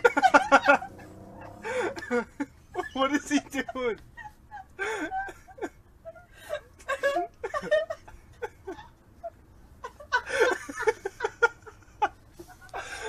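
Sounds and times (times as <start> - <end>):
burst of laughter: 0.0 - 2.9.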